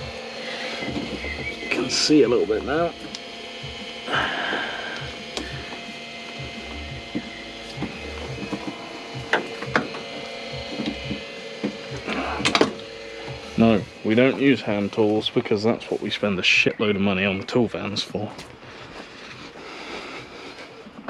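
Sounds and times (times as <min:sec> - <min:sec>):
ratchet clicking: 0:04.8 - 0:14.3.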